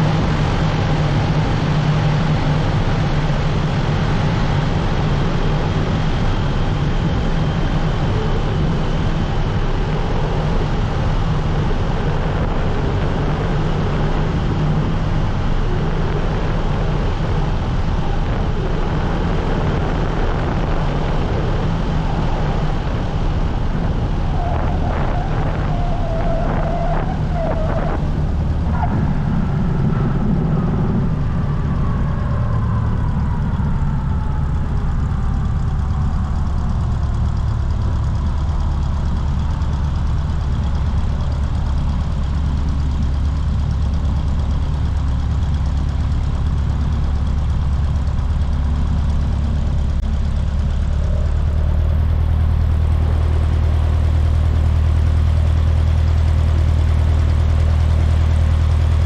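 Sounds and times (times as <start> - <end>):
piston aircraft engine running: 0.0 - 59.0
faint falling whine: 2.4 - 43.3.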